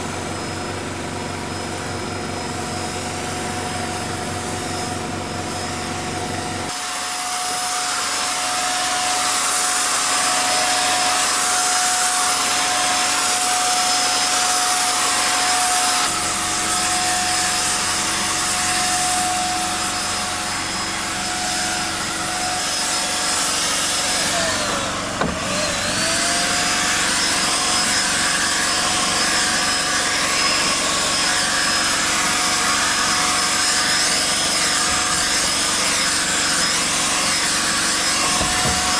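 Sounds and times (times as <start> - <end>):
motor whining: 23.3 - 28.1, 34.6 - 38.9.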